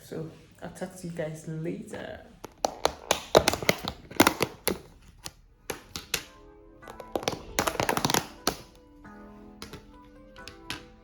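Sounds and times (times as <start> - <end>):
soft music with held notes: 5.4 - 11.0.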